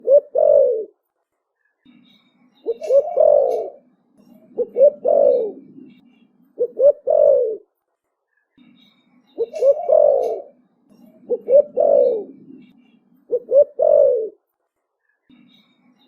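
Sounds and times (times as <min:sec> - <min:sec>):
dove cooing: 0:00.0 - 0:01.0, 0:02.7 - 0:06.0, 0:06.6 - 0:07.7, 0:09.4 - 0:12.7, 0:13.3 - 0:14.4.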